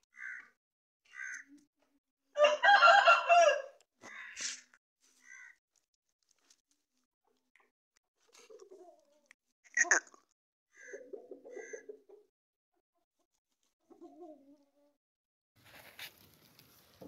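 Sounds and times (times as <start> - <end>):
rooster crowing: 2.4 - 3.8.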